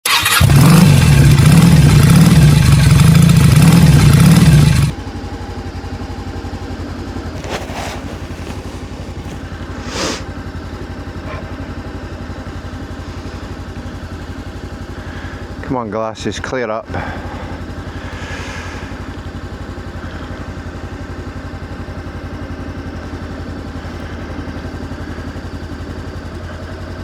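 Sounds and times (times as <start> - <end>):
motorcycle engine revving: 0.0 - 27.0
motorcycle engine idling: 0.1 - 27.0
brief hissy noises: 7.4 - 10.3.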